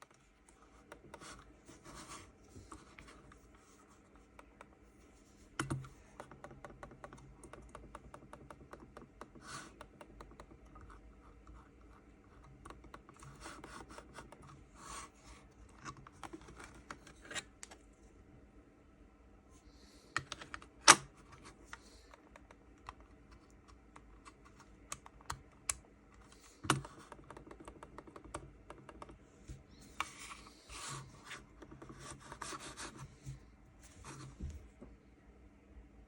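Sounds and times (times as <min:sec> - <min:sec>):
muffled mouse clicks: 0:05.6 - 0:11.0, 0:21.7 - 0:29.2
mouse rubbing over desk: 0:29.8 - 0:34.5.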